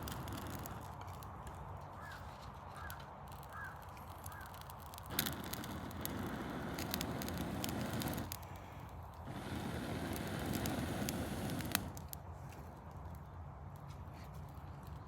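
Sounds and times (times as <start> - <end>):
bird calling: 2.8 - 4.6.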